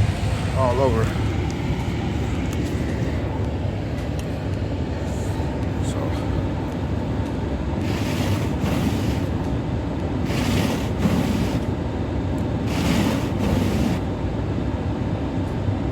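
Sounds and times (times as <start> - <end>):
car engine running: 0.0 - 9.6.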